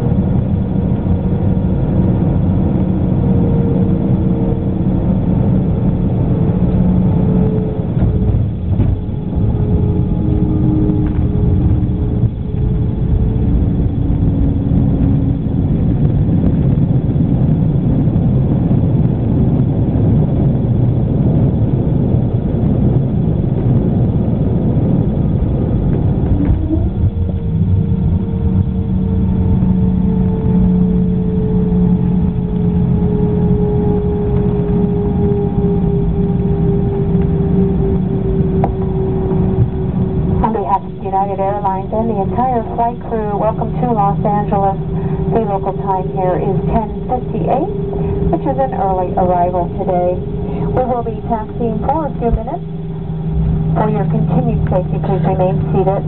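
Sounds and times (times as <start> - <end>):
jet engines rumbling: 0.0 - 56.0.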